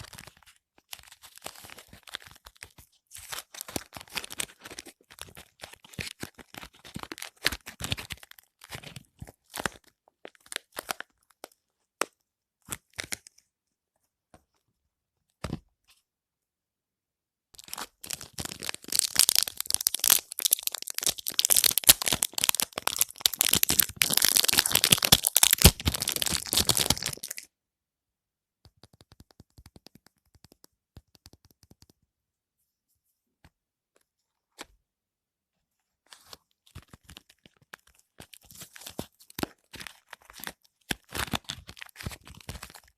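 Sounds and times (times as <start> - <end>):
wrapper crinkling and tearing: 17.6 - 27.5, 36.7 - 42.9.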